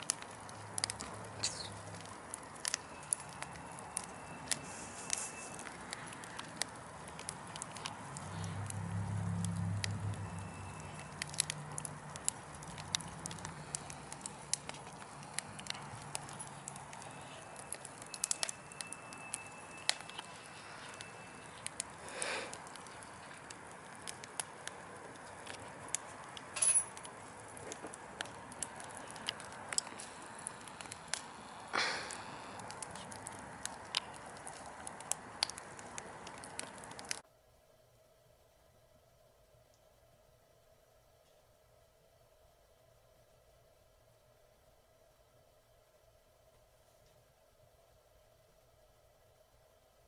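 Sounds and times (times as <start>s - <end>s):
logs crackling and popping: 0.0s - 37.2s
wood fire hissing: 0.0s - 37.2s.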